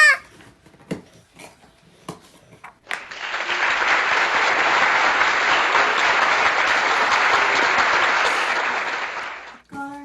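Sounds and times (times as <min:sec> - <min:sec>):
loud applause: 0:02.9 - 0:09.6.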